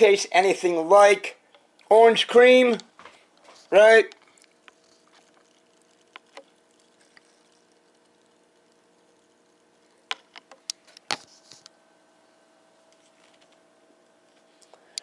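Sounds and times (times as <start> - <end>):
faint clicks and taps: 2.7 - 11.8
sharp clicks and knocks: 10.0 - 11.2.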